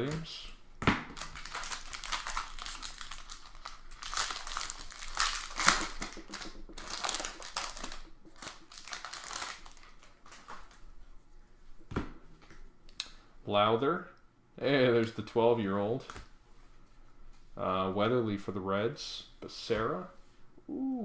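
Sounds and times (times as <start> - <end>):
card pack wrappers crinkling: 1.2 - 10.8
cards rustling and shuffling: 1.2 - 10.9.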